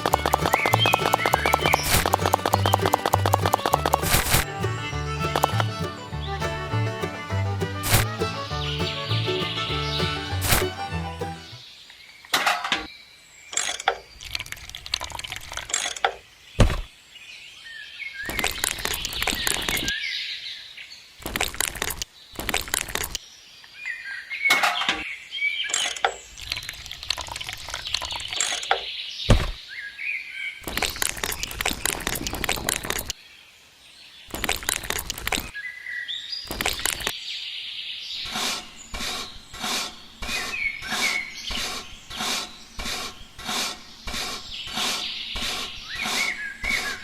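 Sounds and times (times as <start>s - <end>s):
water splashing: 0.0s - 4.6s
birds chirping: 0.0s - 47.0s
sharp knocks: 16.6s - 16.9s, 29.3s - 29.6s.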